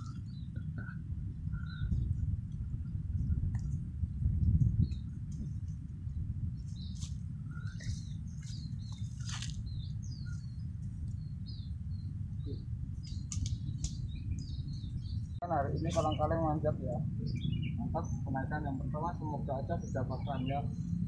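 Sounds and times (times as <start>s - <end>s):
small birds chirping: 0.0s - 21.0s
steady low rumble: 0.0s - 21.0s
leaves and branches rustling: 4.6s - 11.4s.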